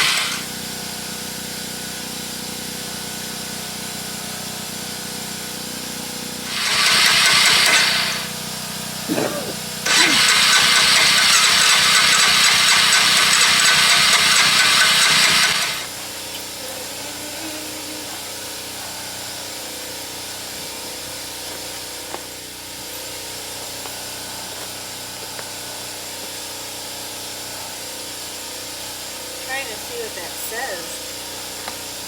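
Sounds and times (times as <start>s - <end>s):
engine starter cranking: 0.0s - 0.6s, 6.5s - 8.4s, 9.8s - 16.6s.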